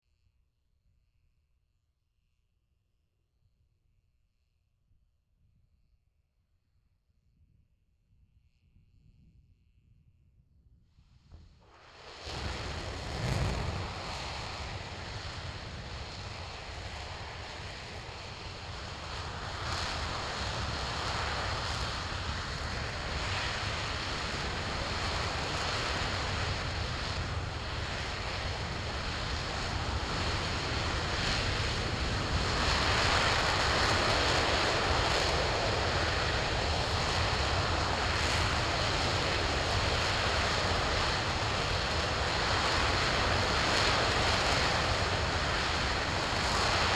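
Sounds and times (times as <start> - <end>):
rocket engine firing: 11.9 - 16.3.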